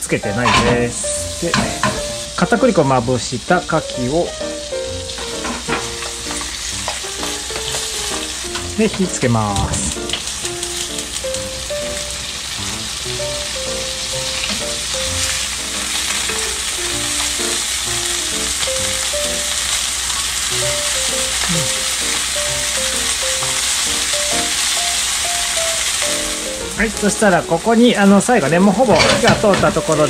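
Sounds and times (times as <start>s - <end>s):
light background music: 0.0s - 19.8s, 20.4s - 30.0s
oysters sizzling in butter: 0.0s - 30.0s.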